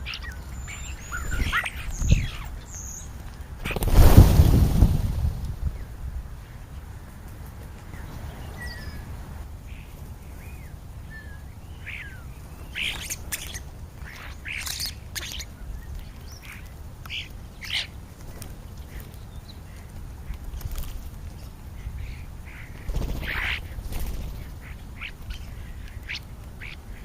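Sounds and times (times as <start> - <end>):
birds whistling: 0.0 - 4.1, 10.5 - 17.9
harsh raspy bird calls: 22.0 - 27.0.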